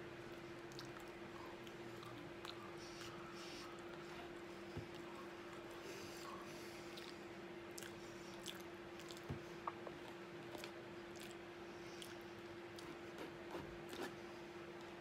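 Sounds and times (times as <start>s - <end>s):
person chewing: 0.6s - 2.7s, 6.9s - 13.3s.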